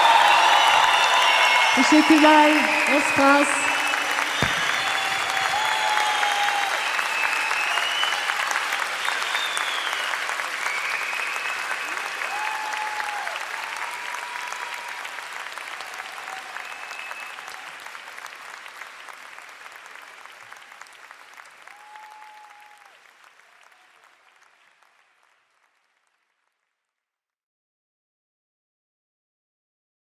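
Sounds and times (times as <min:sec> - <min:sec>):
audience cheering: 0:00.0 - 0:18.3, 0:20.5 - 0:24.4
audience applauding: 0:00.0 - 0:26.4.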